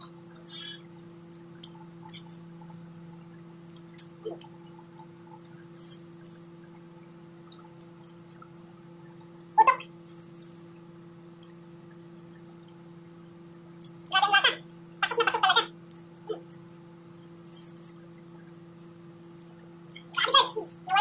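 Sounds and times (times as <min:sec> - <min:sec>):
low electrical hum: 0:00.0 - 0:21.0
wet mouth clicks and smacks: 0:03.7 - 0:04.6.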